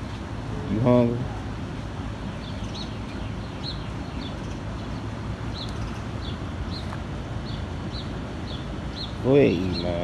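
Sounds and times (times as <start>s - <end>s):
small songbird chirping: 2.2s - 10.0s.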